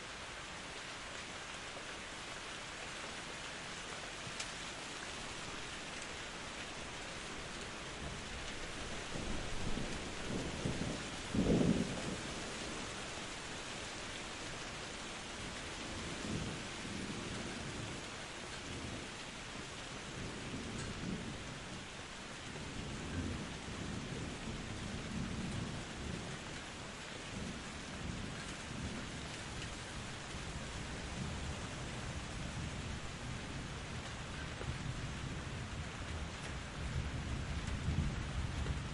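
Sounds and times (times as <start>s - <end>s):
steady rain: 0.0s - 38.9s
thunder rumbling: 9.0s - 13.0s, 27.3s - 38.9s.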